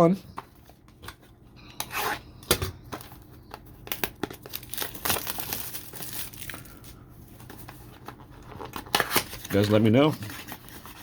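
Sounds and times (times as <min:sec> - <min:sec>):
plastic packaging tearing and crinkling: 0:03.7 - 0:06.8, 0:08.4 - 0:11.0.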